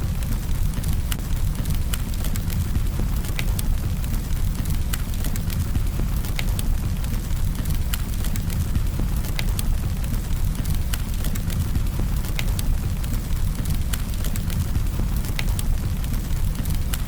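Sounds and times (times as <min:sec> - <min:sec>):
burning wood crackling: 0:00.0 - 0:17.0.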